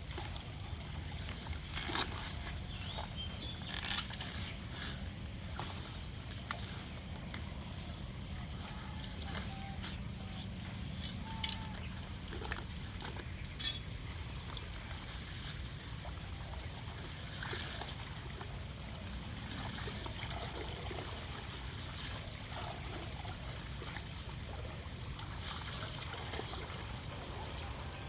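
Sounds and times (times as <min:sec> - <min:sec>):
floodwater running and trickling: 0:00.0 - 0:28.0
small splashes and clinks: 0:08.4 - 0:24.6, 0:25.2 - 0:27.4.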